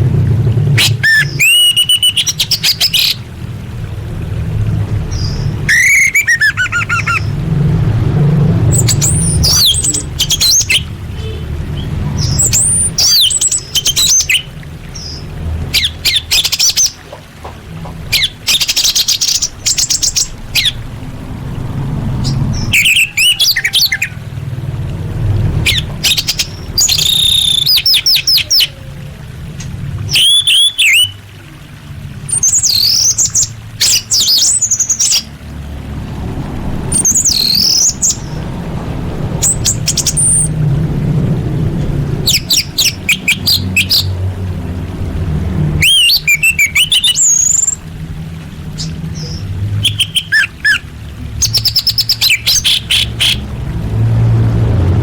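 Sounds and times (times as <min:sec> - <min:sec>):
low rumble: 0:06.4 - 0:13.7, 0:19.4 - 0:26.8, 0:35.4 - 0:46.2, 0:53.4 - 0:55.0.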